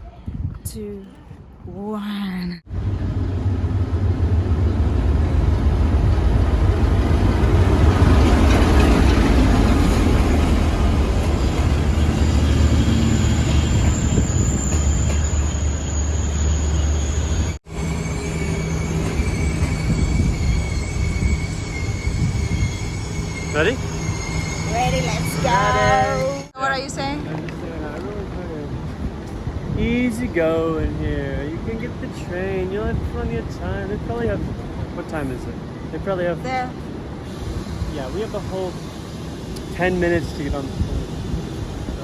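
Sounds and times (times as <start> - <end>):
diesel train rumbling past: 2.7 - 42.0
high wheel squeal: 11.9 - 26.5.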